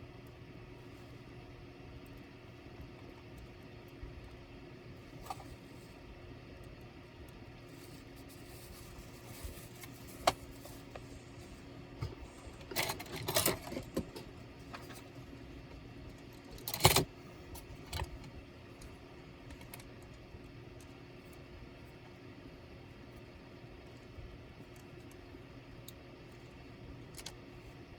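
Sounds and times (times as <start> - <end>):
small parts clicking and clattering: 12.0 - 15.2, 16.0 - 20.2, 25.8 - 27.5.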